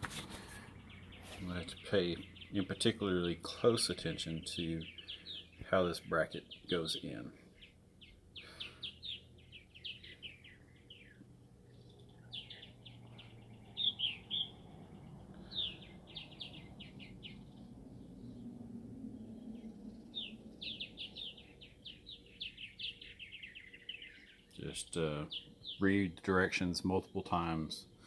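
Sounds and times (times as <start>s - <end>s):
small birds chirping: 0.0s - 28.0s
faint low rumble: 10.6s - 22.2s.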